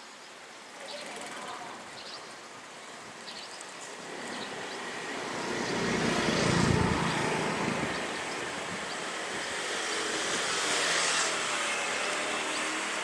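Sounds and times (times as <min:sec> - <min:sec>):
vehicle passing: 0:04.0 - 0:13.0.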